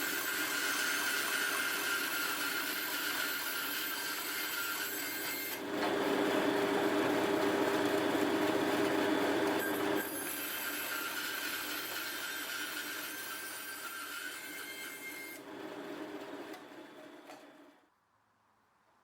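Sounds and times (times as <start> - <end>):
power saw cutting wood: 0.0 - 6.0, 9.6 - 17.6.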